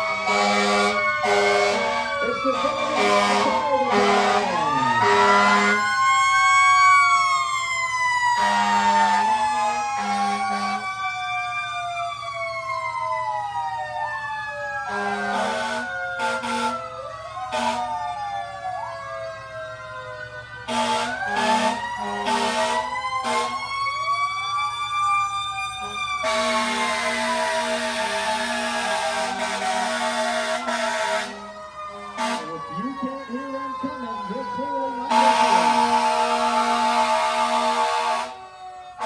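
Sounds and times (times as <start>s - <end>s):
loud horn blasts: 0.0s - 5.9s, 8.4s - 9.2s, 10.0s - 10.8s, 14.9s - 16.8s, 17.5s - 17.9s, 20.7s - 23.6s, 25.8s - 33.0s, 35.0s - 38.4s
emergency sirens wailing: 0.0s - 39.0s.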